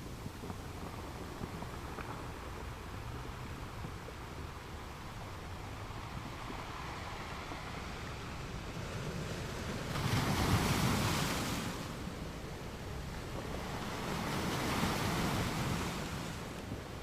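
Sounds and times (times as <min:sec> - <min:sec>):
ocean waves washing: 0:04.3 - 0:17.0.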